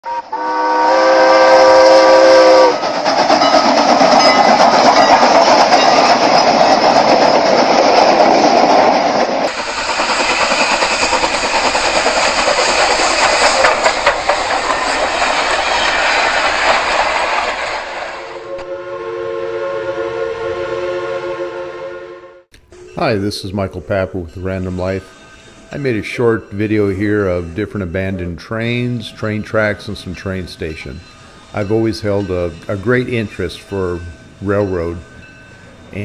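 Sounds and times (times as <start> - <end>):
train horn chord: 0.0 - 2.8, 18.4 - 23.3
train rushing past: 0.0 - 36.0.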